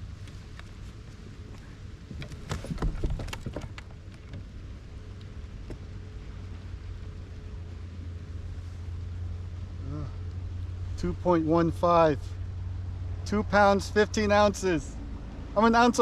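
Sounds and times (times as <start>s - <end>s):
low steady rumble: 0.0s - 16.0s
gear clicks and knocks: 1.5s - 4.5s.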